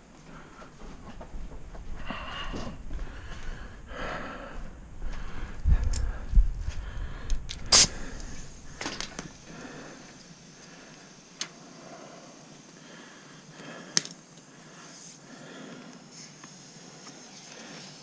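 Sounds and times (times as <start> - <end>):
air hose handling noise: 7.3 - 11.6.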